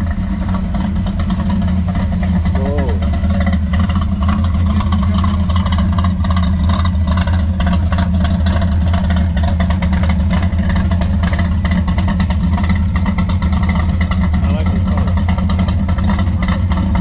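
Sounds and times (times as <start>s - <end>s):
engine idling with deep rumble: 0.0s - 17.0s.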